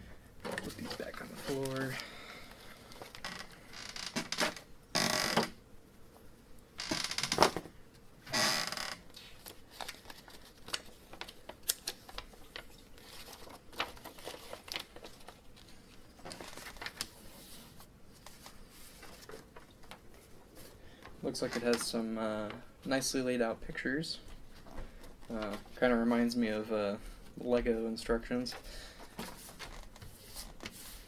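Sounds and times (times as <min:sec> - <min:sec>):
paper pages rustling: 0:00.5 - 0:03.2, 0:09.1 - 0:22.5, 0:24.5 - 0:26.4, 0:28.4 - 0:31.0.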